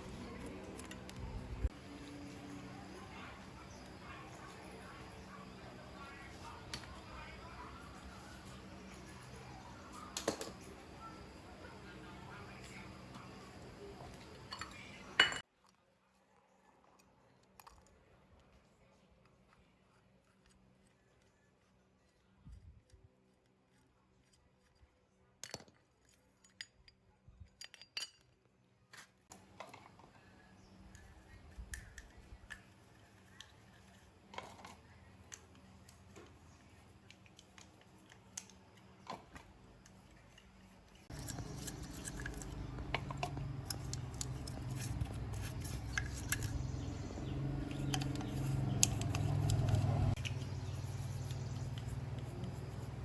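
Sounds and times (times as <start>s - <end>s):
steady low hum: 0.0s - 15.4s
metal tools clinking: 14.2s - 15.4s.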